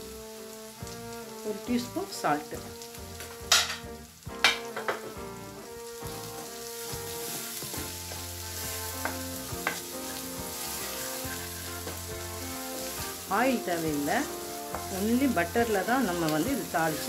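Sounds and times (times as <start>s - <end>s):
onions sizzling in butter: 0.0s - 17.0s
wooden spatula stirring: 4.7s - 17.0s.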